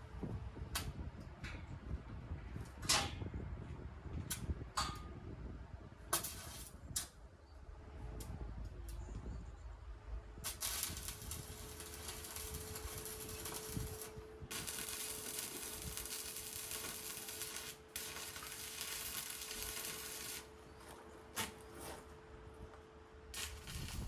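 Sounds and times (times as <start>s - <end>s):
electric arc welding crackling: 6.2s - 6.8s, 10.4s - 20.6s, 23.3s - 24.0s.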